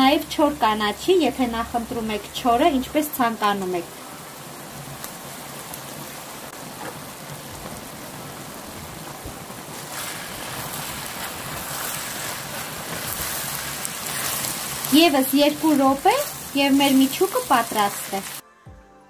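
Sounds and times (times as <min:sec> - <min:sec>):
meat sizzling in a pan: 0:00.0 - 0:18.4
wooden spatula stirring: 0:09.7 - 0:18.4.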